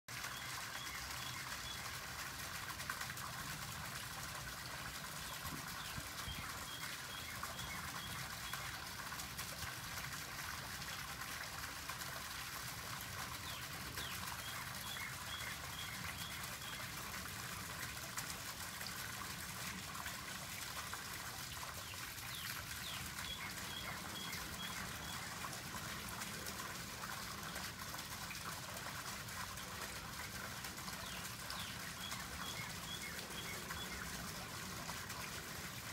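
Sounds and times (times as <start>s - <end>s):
steady outdoor hiss: 0.1s - 35.9s
songbird singing: 5.3s - 8.7s, 22.3s - 25.3s, 31.0s - 34.1s.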